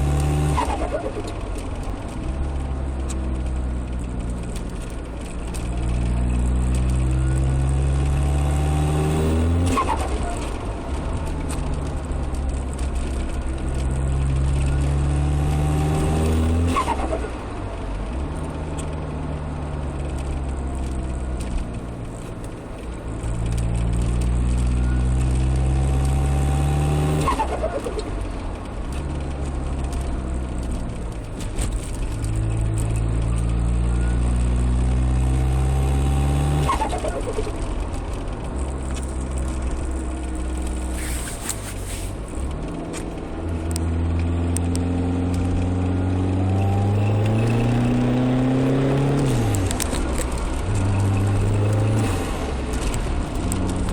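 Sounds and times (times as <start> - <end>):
diesel engine accelerating: 0.0 - 53.9
turbo flutter: 36.4 - 45.8.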